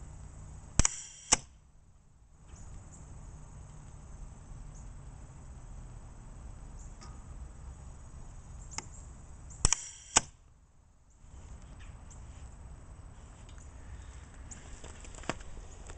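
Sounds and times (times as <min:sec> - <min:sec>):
steady low hiss: 0:00.0 - 0:15.9.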